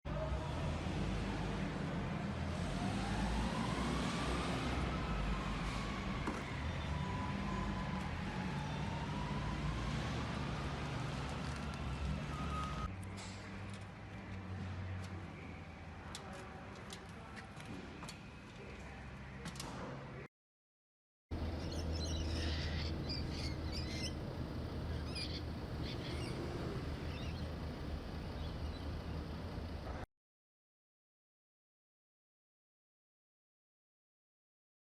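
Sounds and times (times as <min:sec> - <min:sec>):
small birds chirping: 0:21.4 - 0:29.4.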